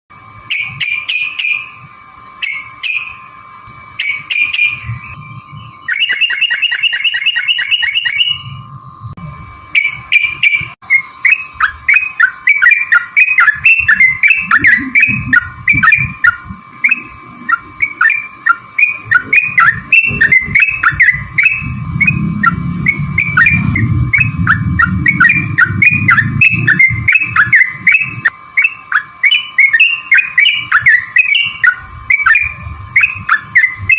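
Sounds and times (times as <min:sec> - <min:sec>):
steady thin hum: 0:00.1 - 0:33.9
bird whistled song: 0:00.5 - 0:01.7, 0:02.4 - 0:03.2, 0:04.0 - 0:08.6, 0:09.8 - 0:33.9
low rumble: 0:19.0 - 0:28.3.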